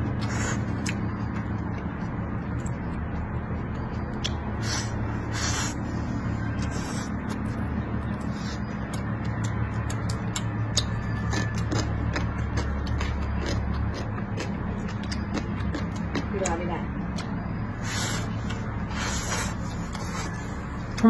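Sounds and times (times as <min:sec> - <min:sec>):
close-up chewing with wet clicks: 0:00.0 - 0:05.5, 0:06.4 - 0:21.0
steady low hum: 0:00.0 - 0:21.0.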